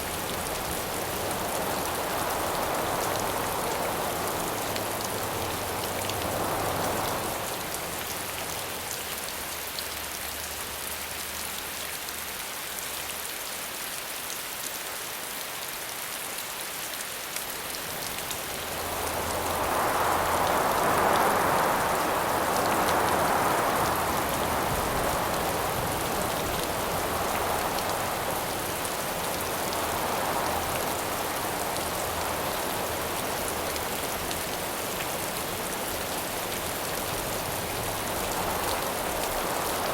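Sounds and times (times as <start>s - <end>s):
wind gusts: 0.0s - 9.0s, 17.4s - 39.9s
steady rain patter: 0.0s - 39.9s.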